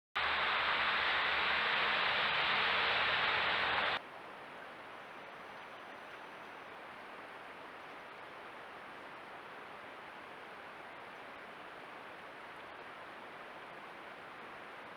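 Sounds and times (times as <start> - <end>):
river water rushing: 0.2 - 4.0.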